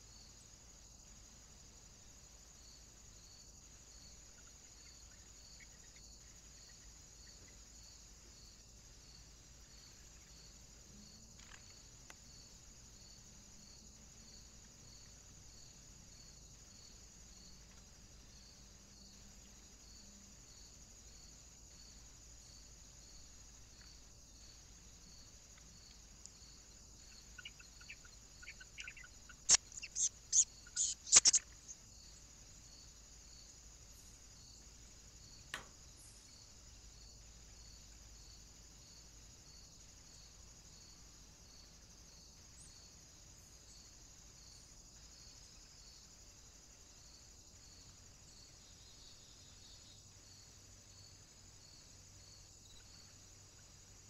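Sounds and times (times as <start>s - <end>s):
insect chirring: 0.0s - 54.0s
bird calls: 27.0s - 31.8s.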